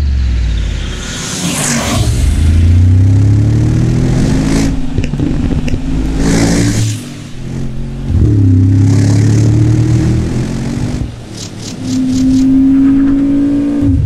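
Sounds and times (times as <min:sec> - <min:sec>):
car engine revving: 0:00.0 - 0:14.0
exhaust pops: 0:04.4 - 0:08.9.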